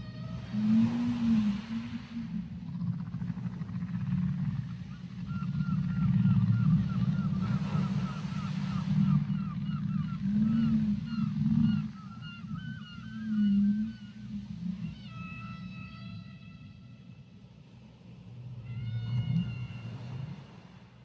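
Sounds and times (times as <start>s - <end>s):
whale low moan underwater: 0.0s - 21.0s
whale chirps: 4.4s - 17.0s, 18.6s - 20.5s.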